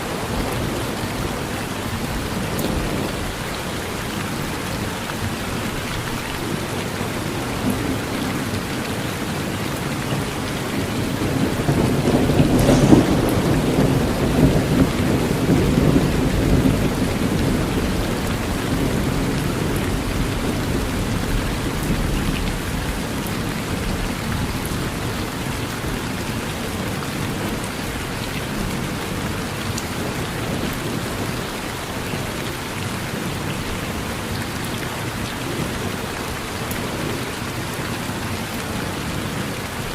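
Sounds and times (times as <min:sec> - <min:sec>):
steady rain falling: 0:00.0 - 0:39.9
thunder cracking and rumbling: 0:09.2 - 0:31.5.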